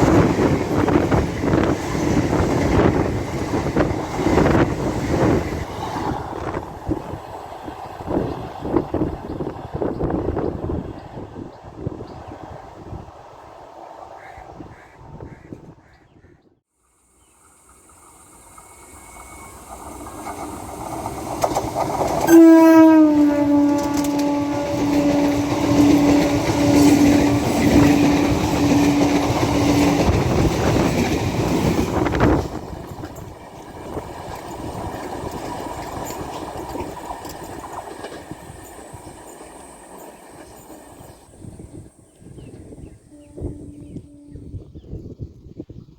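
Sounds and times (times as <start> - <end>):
train wheels rumbling and clattering: 0.0 - 13.3, 18.5 - 22.4, 23.0 - 43.0
train horn blast: 22.2 - 30.6, 43.1 - 44.7.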